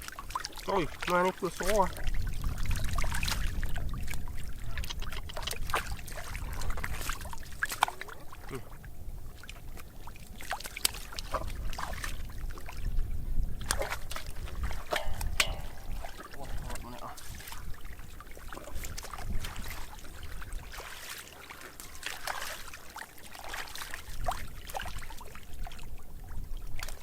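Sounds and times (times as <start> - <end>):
water sloshing and splashing: 0.0 - 27.0
knocks: 14.9 - 16.0.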